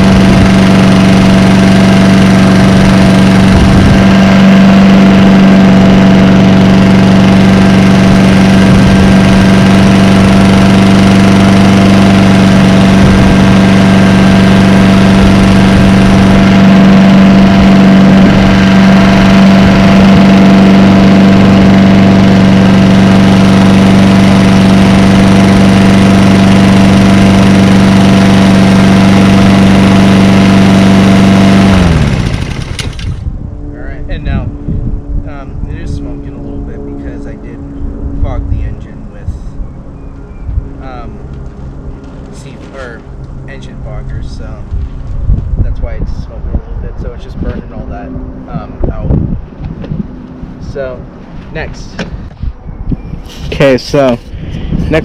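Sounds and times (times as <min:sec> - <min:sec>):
lawn mower engine running: 0:00.0 - 0:33.3, 0:53.3 - 0:55.0.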